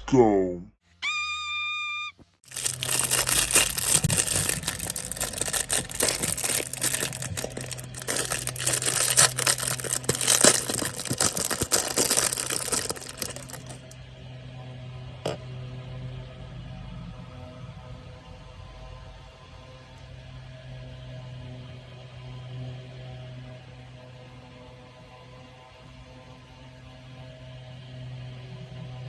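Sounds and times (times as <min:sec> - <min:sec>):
plastic crinkling: 0:02.5 - 0:14.0.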